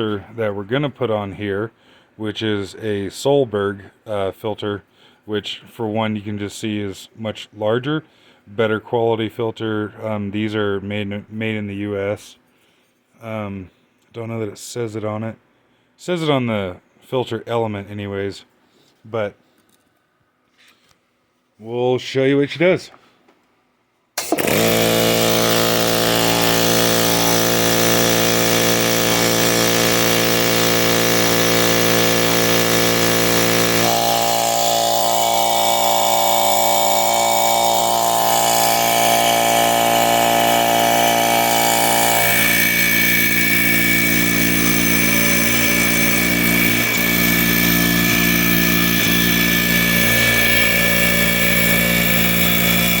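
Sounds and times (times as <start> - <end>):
air compressor running: 24.2 - 53.0.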